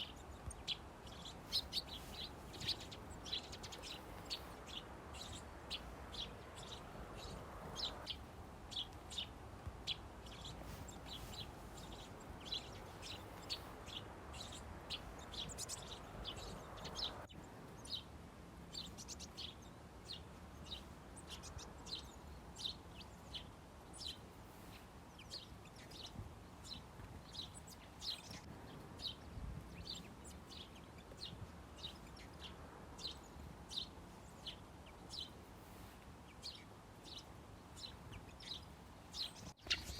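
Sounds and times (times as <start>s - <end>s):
faint background hiss: 0.0s - 39.9s
small birds chirping: 0.0s - 39.9s.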